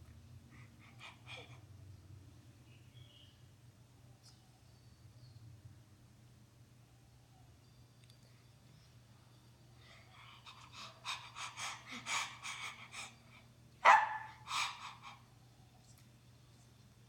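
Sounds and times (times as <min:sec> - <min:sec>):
dog panting: 0:00.5 - 0:01.6, 0:10.2 - 0:13.2
dog barking: 0:13.8 - 0:14.9.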